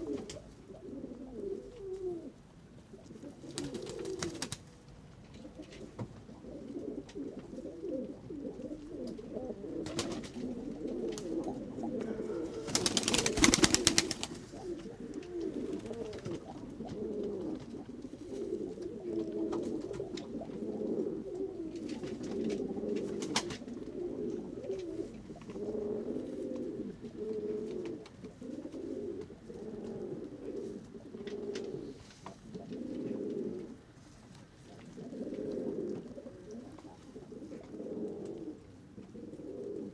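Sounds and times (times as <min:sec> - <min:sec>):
pigeons cooing: 0:00.0 - 0:39.9
wings flapping: 0:03.5 - 0:04.7, 0:09.8 - 0:10.5, 0:12.5 - 0:16.6.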